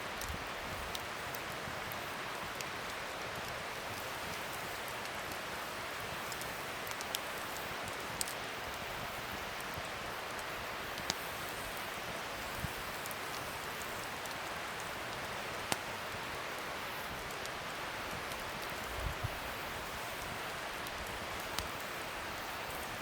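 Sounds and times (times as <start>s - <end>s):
wood fire crackling: 0.0s - 23.0s
sharp pops of fire: 9.2s - 16.3s.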